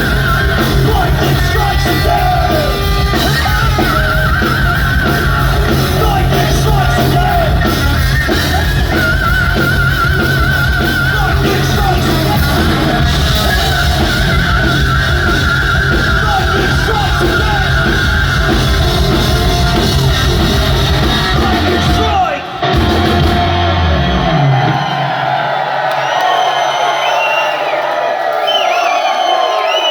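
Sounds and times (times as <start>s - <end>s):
sung vocals: 0.0s - 23.5s
distorted electric guitar: 0.0s - 25.0s
live hard rock band: 0.0s - 25.6s.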